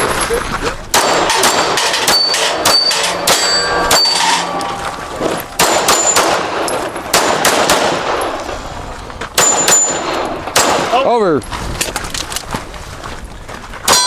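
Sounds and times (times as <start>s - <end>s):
pistol shots: 0.9s - 4.0s, 5.6s - 8.8s, 9.4s - 11.1s
steel targets ringing: 1.0s - 11.0s.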